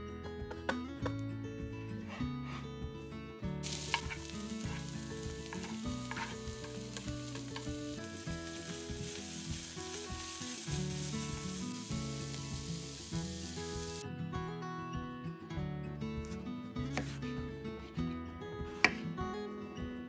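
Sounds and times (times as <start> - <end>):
spatula scraping a pan: 3.6 - 7.7
vegetables sizzling in oil: 3.6 - 14.0.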